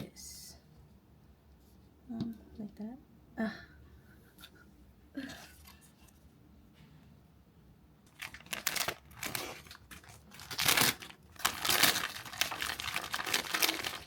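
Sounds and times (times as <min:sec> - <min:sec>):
packaging crinkling and tearing: 0:08.1 - 0:14.0.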